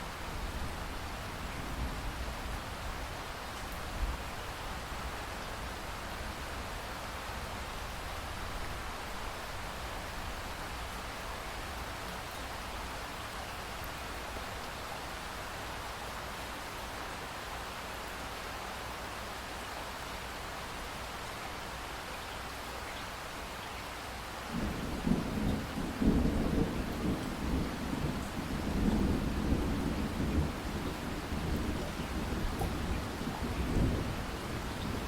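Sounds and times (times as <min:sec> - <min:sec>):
heavy rain: 0:00.0 - 0:35.0
thunder rumbling: 0:24.5 - 0:35.0.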